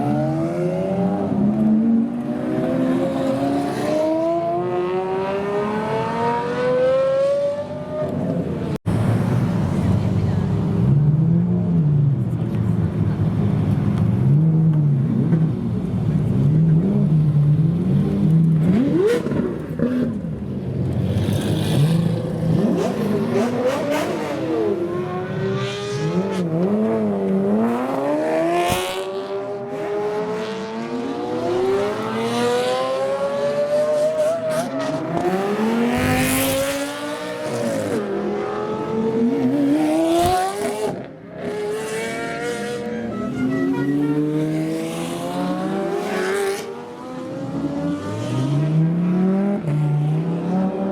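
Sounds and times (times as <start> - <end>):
cars accelerating hard: 0.0 - 9.2, 20.9 - 50.9
supercar engines revving: 0.0 - 50.9.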